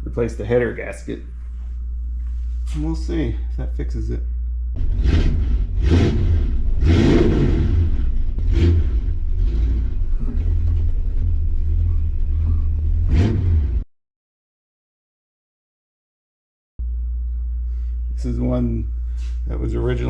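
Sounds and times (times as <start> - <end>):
car engine running: 1.3 - 13.8.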